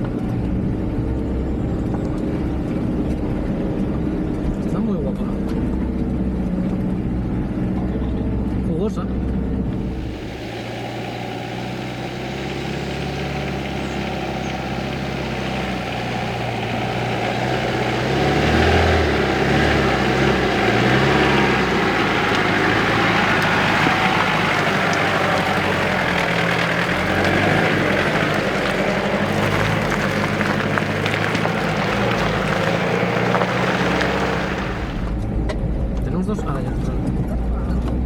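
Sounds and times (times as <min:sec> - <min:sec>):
off-road vehicle engine running: 0:00.0 - 0:36.0.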